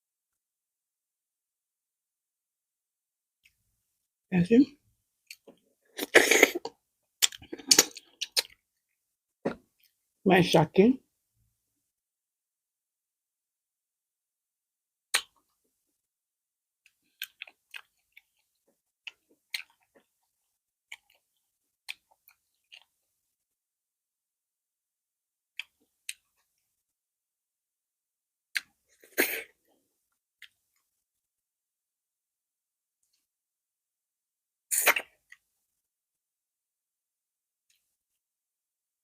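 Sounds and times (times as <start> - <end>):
mouth chewing soft food: 5.2 - 8.7, 16.8 - 23.0.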